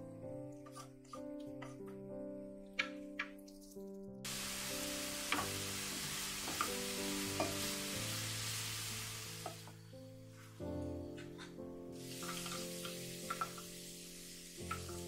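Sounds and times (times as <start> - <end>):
background music: 0.0 - 15.0
vegetables sizzling in oil: 4.3 - 9.8, 12.0 - 15.0.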